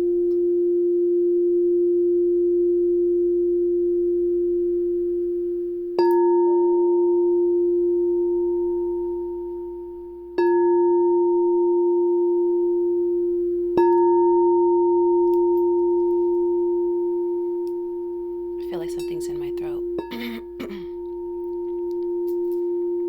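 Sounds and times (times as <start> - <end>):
singing bowl ringing: 6.0 - 23.0.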